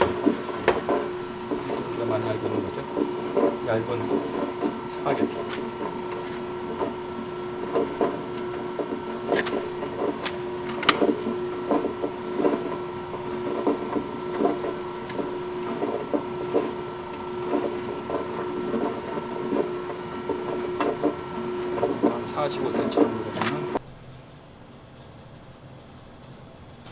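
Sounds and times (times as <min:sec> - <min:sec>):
pasta extruder motor hum: 0:00.0 - 0:23.8
regular knocking: 0:00.0 - 0:23.8.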